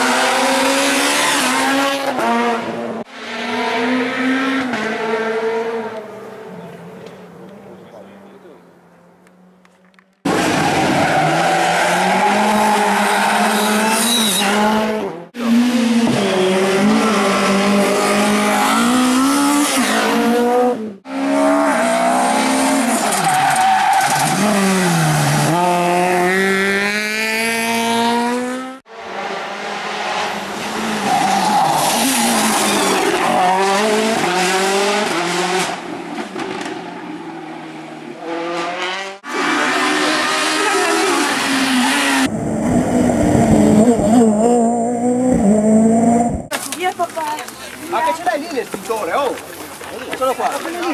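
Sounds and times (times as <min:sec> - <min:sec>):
rally car engines revving: 0:00.0 - 0:46.5
tyre squeal: 0:11.0 - 0:14.7.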